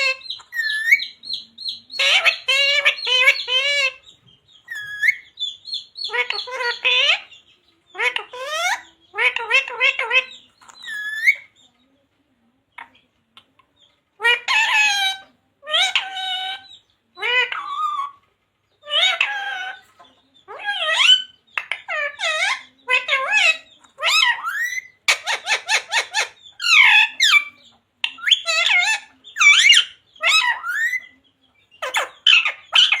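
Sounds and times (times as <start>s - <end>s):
parrot chattering: 0.0s - 11.6s, 14.2s - 18.2s, 18.8s - 33.0s
parrot squawking and whistling: 4.7s - 5.3s, 20.5s - 27.5s, 31.8s - 33.0s.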